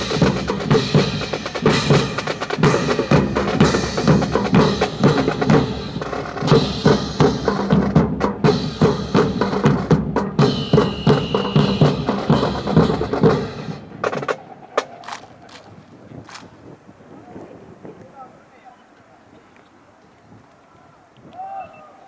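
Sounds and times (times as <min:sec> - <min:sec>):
marching snare and bass drums: 0:00.0 - 0:16.5.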